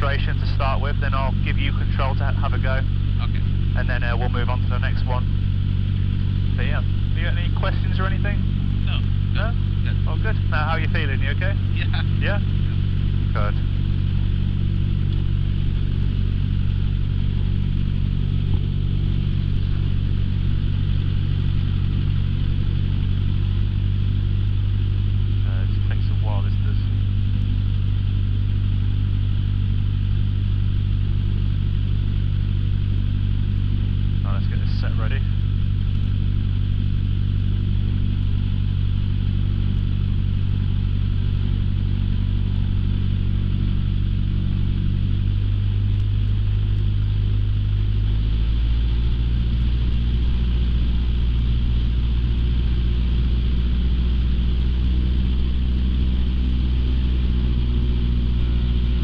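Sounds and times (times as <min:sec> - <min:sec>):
aircraft piston engine idling: 0:00.0 - 0:59.0.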